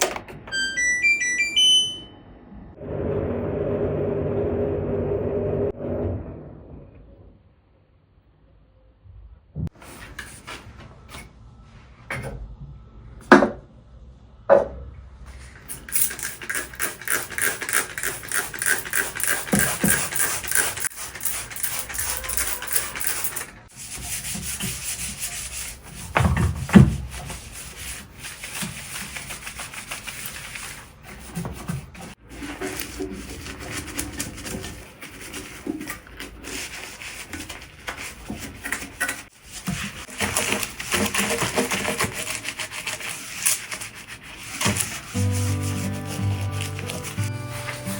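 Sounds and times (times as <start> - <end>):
scrubbing strokes on hard surface: 16.6 - 47.9.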